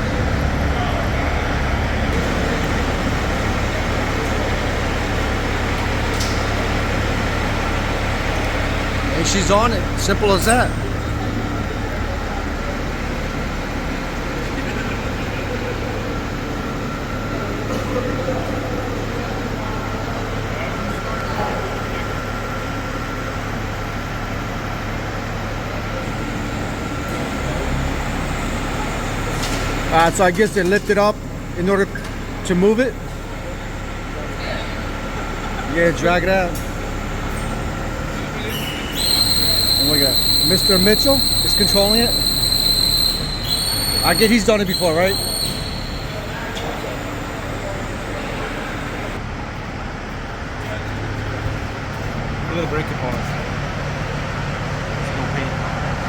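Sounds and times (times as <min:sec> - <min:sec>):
diesel truck engine running: 0:00.0 - 0:56.0
heavy machine humming: 0:00.0 - 0:56.0
high-pitched whine: 0:35.8 - 0:49.2.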